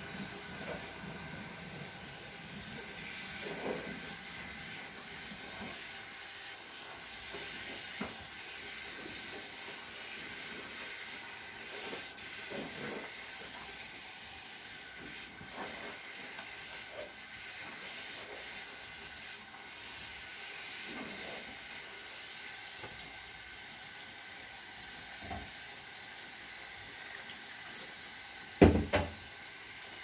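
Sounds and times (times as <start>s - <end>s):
steady hiss: 0.0s - 30.0s
sponge squishing: 2.6s - 21.7s.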